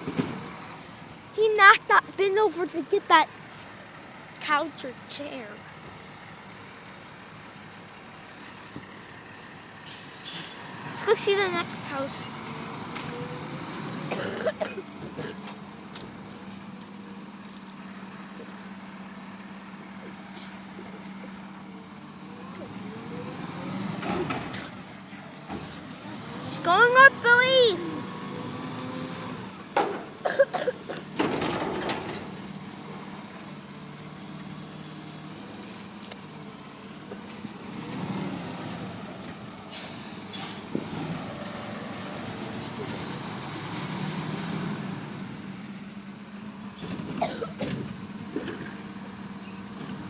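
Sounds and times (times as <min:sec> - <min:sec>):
garbage truck diesel engine: 0:00.0 - 0:50.0
high squeal and clatter: 0:14.4 - 0:15.4, 0:45.2 - 0:47.0.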